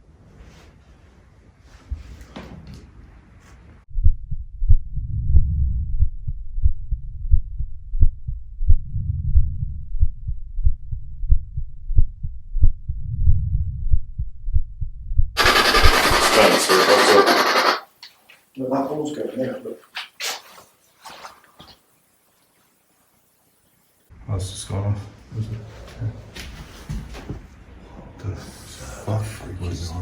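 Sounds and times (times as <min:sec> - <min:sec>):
muffled heartbeat-like thudding: 0:04.0 - 0:15.4.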